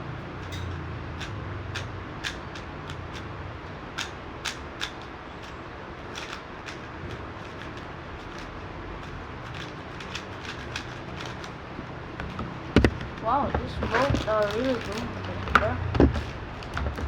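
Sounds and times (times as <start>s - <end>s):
low background hum: 0.0s - 17.0s
speed cube layers clicking: 0.4s - 3.3s, 3.9s - 11.6s.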